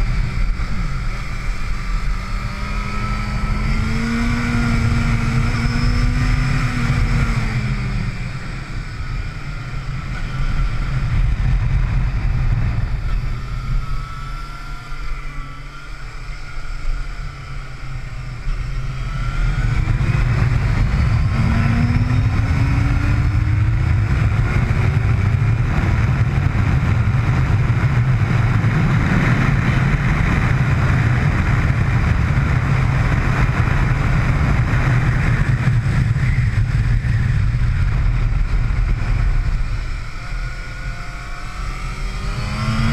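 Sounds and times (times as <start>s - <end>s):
motorcycle engine at speed: 0.0s - 42.9s
wind rush: 18.1s - 42.9s.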